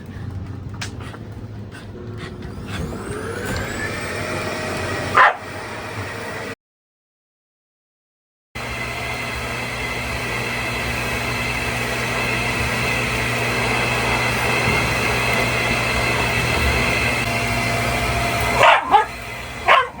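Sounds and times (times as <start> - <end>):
vacuum cleaner running: 1.7 - 6.6, 8.6 - 20.0
dog barking sharply: 5.1 - 5.5, 18.6 - 20.0.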